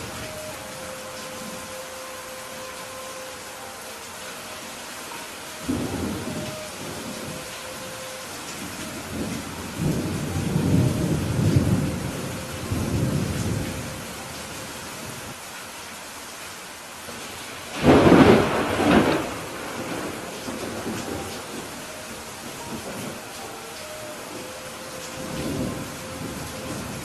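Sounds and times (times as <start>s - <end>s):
steady rain hiss: 0.0s - 27.0s
thunder rumbling: 5.1s - 14.3s, 17.7s - 27.0s.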